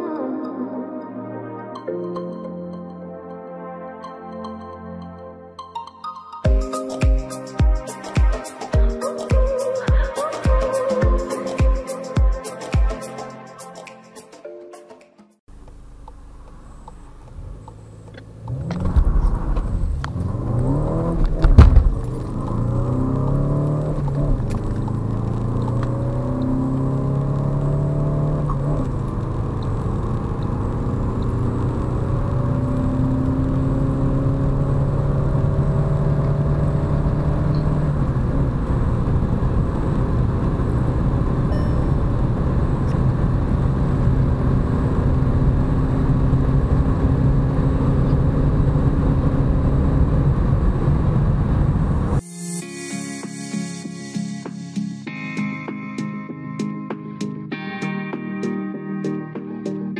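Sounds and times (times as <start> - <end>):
car engine accelerating: 15.5 - 52.2
road and wind noise: 15.5 - 52.2.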